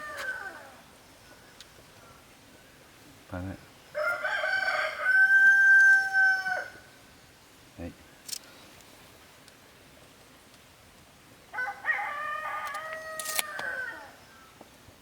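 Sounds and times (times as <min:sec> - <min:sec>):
rooster crowing: 0:00.0 - 0:00.8, 0:04.0 - 0:06.9, 0:11.5 - 0:14.2.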